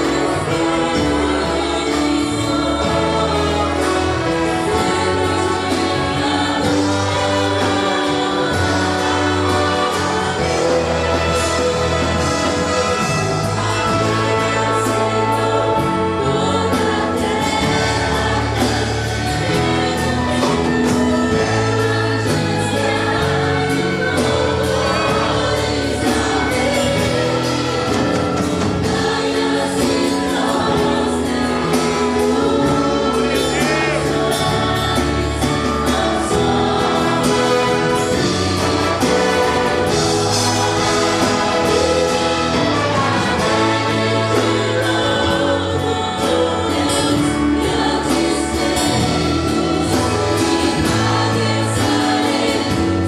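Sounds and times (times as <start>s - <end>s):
choir singing a hymn: 0.0s - 53.0s
instrumental accompaniment: 0.0s - 53.0s.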